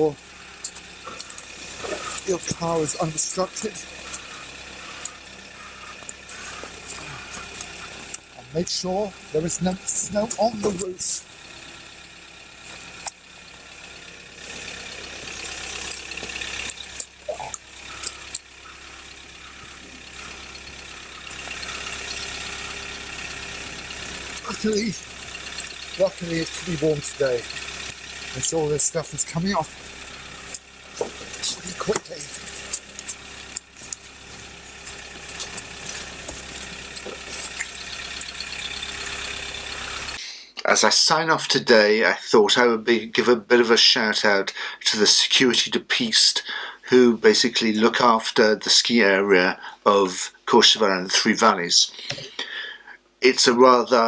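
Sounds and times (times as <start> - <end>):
car engine idling: 0.0 - 43.1, 46.2 - 48.1, 49.0 - 51.2
snow scraping off car: 1.1 - 5.0
melting snow dripping: 15.3 - 40.2
running water hiss: 16.1 - 32.6.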